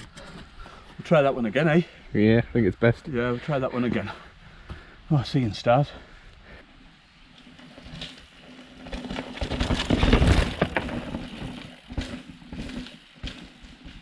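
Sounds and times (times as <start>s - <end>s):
bike tyre rumble and rattle: 6.4s - 14.0s.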